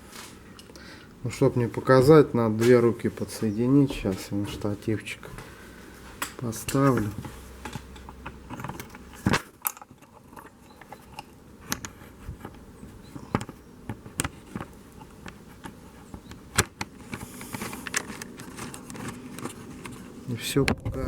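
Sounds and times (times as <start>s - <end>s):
camera being handled: 13.3s - 20.2s.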